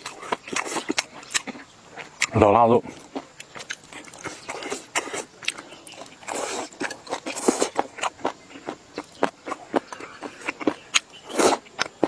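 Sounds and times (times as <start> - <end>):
person chewing and crunching: 0.0 - 12.0.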